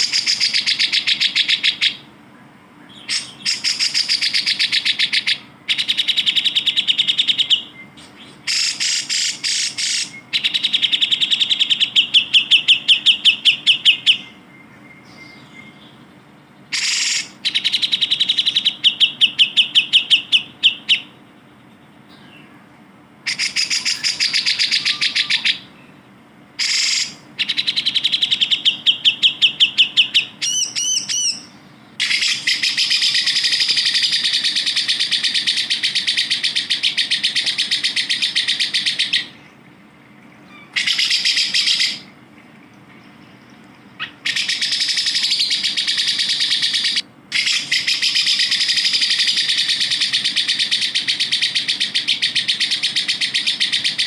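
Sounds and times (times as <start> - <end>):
bird chattering song: 0.0 - 2.1, 2.8 - 54.0
bird whistled notes: 23.3 - 25.6, 26.6 - 39.3.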